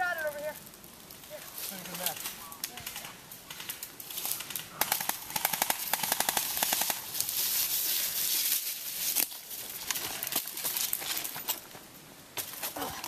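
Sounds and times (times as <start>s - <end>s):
steady hiss: 0.0s - 13.0s
airsoft gun full-auto burst: 4.8s - 7.1s.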